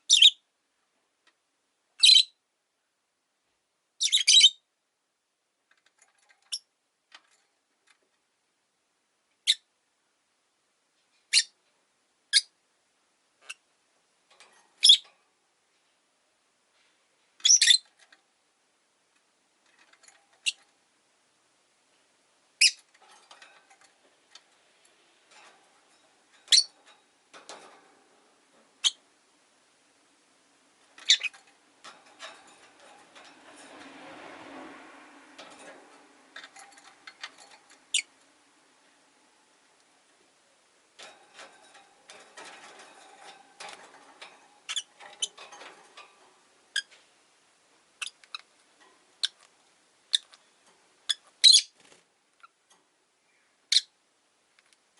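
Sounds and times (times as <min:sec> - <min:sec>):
parrots chirping: 0:00.0 - 0:00.4, 0:02.0 - 0:02.4, 0:04.0 - 0:04.6, 0:11.3 - 0:11.6, 0:12.3 - 0:12.5, 0:14.8 - 0:15.1, 0:17.4 - 0:18.0, 0:22.6 - 0:23.6, 0:25.4 - 0:27.8, 0:28.7 - 0:29.0, 0:30.9 - 0:31.5, 0:35.4 - 0:38.2, 0:41.0 - 0:45.8, 0:48.0 - 0:48.5, 0:49.2 - 0:51.8.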